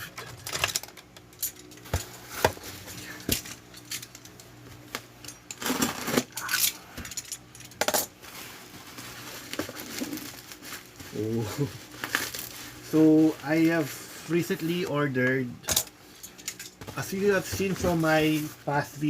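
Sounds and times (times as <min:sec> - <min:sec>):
cardboard rustling: 0:08.2 - 0:14.7.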